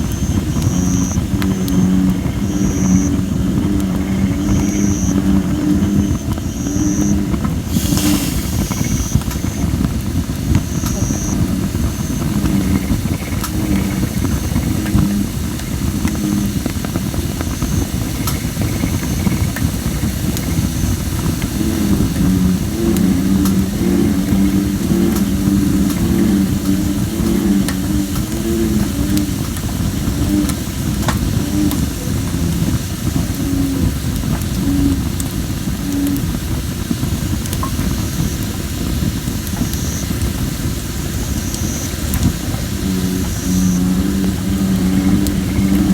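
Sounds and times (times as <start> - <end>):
bullfrogs calling: 0.0 - 38.5, 39.4 - 45.9
campfire crackling and popping: 0.0 - 45.9
steady low drone: 0.0 - 45.9
faint high hiss from wood: 7.6 - 9.8.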